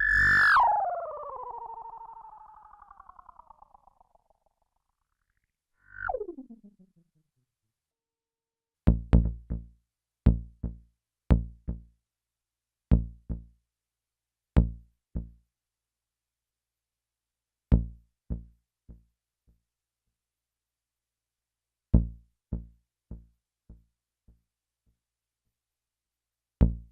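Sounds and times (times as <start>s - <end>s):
falling pitch sweep with echoes: 0.0s - 4.1s
synth bass notes with delay: 5.8s - 7.2s.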